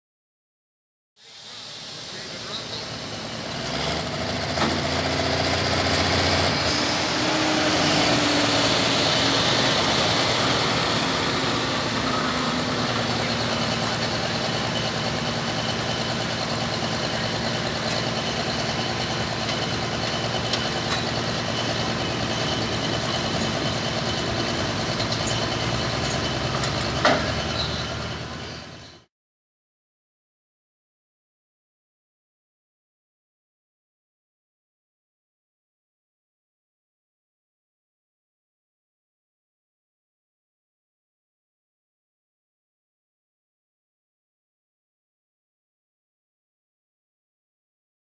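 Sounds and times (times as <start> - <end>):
diesel tractor engine under load: 1.3 - 29.1.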